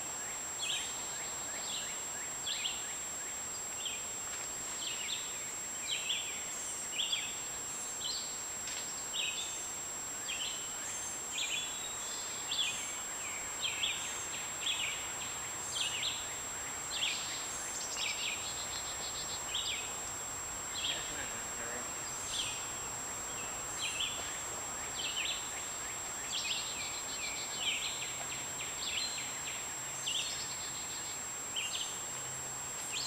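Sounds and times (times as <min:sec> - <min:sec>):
bird chirping: 0:20.7 - 0:32.0.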